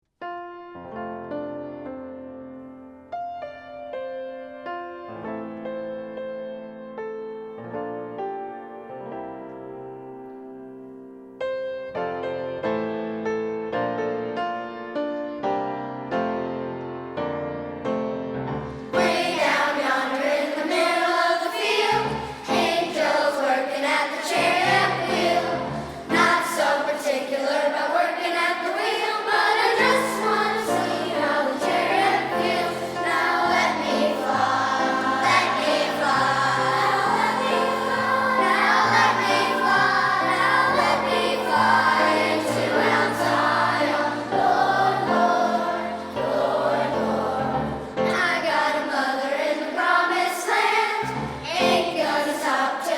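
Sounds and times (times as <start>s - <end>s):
piano accompaniment: 0.2s - 52.9s
children's choir singing: 18.7s - 52.9s.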